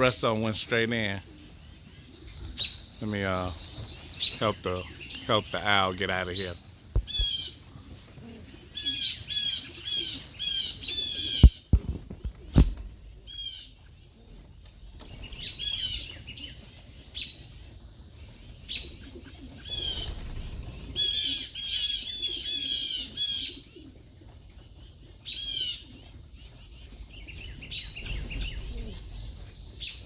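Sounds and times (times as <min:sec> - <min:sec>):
birds giving high alarm calls: 0:01.3 - 0:07.6.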